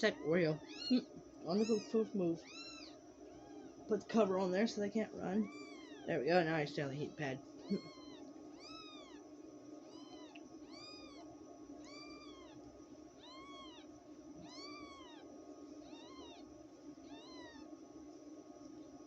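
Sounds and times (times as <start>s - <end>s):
kitten mewing: 7.6s - 9.2s, 13.2s - 15.2s, 15.8s - 16.4s.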